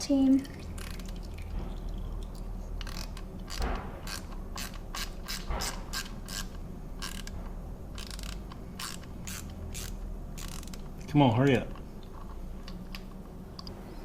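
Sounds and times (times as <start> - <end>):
ratchet wrench clicking: 2.8 - 10.9.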